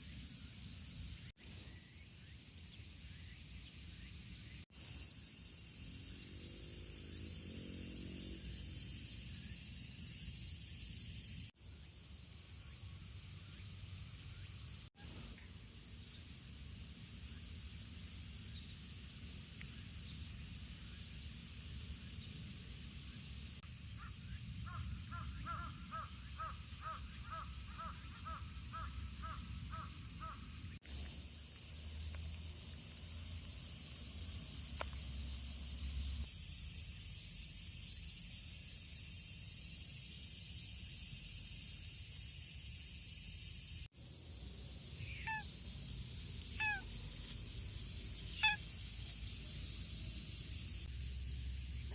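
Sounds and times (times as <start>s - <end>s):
steady high hiss: 30.0s - 51.9s
short bird chirps: 45.0s - 45.5s, 46.4s - 47.0s, 48.3s - 48.7s
bird calling: 45.0s - 45.6s, 46.4s - 47.5s, 48.1s - 48.9s.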